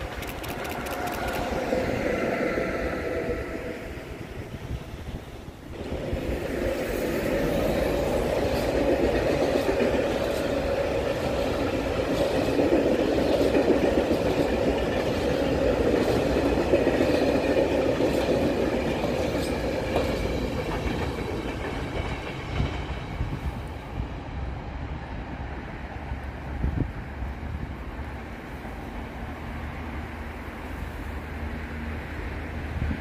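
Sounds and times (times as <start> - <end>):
wheels clicking over rail joints: 0.0 - 1.7, 5.7 - 23.3
train wheels rumbling on rail: 0.0 - 33.0.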